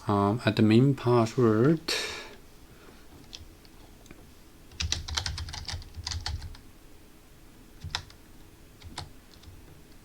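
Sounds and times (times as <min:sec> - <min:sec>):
typing on computer keyboard: 0:04.7 - 0:06.6, 0:07.8 - 0:08.2, 0:08.8 - 0:09.6.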